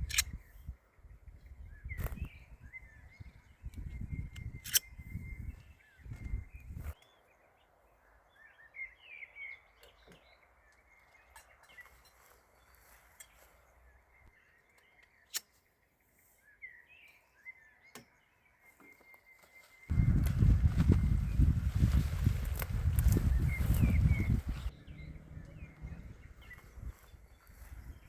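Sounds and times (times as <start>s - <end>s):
sharp clicks: 0.0s - 0.4s, 3.7s - 5.0s
small bird chirps: 20.8s - 28.0s.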